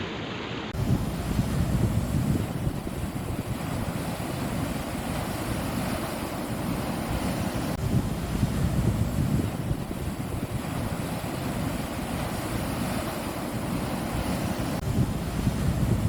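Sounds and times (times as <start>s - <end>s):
sea waves on a beach: 0.0s - 16.0s
wind buffeting microphone: 0.7s - 16.0s.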